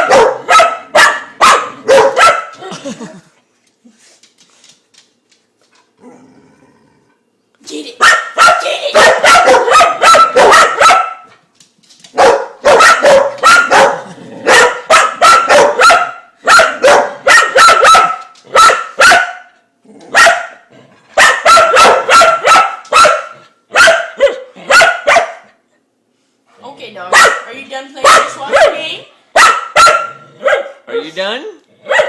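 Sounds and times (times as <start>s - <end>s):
dog barking: 0.0s - 2.6s, 8.0s - 11.4s, 12.1s - 25.6s, 27.1s - 31.1s.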